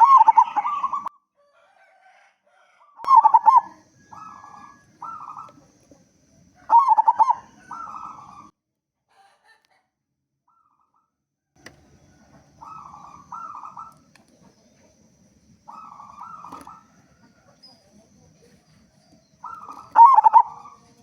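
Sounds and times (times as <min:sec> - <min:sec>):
dove cooing: 0:00.0 - 0:01.1, 0:03.0 - 0:08.5, 0:11.7 - 0:21.0.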